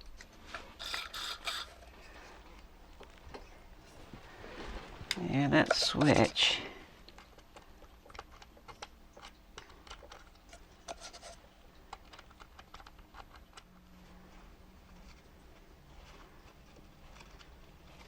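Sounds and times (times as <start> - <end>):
faint low hum: 0.0 - 18.0
small plastic clicks and scratches: 0.1 - 1.8, 7.0 - 13.9, 16.0 - 18.0.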